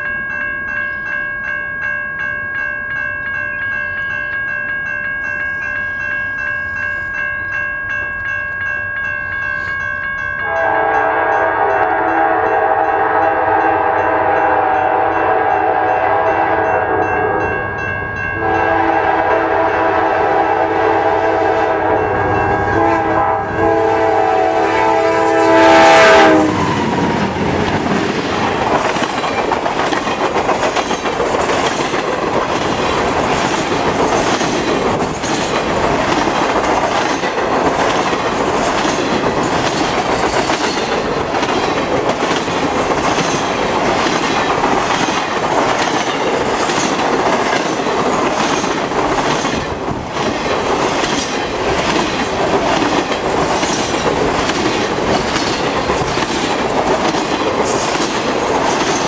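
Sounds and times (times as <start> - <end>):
locomotive air horn blasts: 10.4 - 17.4, 18.4 - 27.2
train wheels clacking on rail joints: 26.2 - 59.0.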